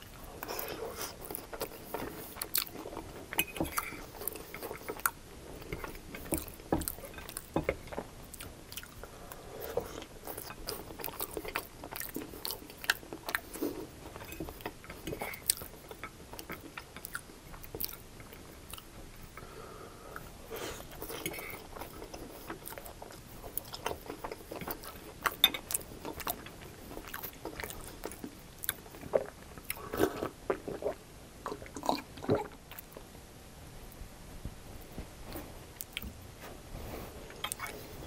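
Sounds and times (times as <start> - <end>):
person chewing: 0.0 - 19.5, 20.1 - 33.0, 35.3 - 36.1, 37.3 - 38.0.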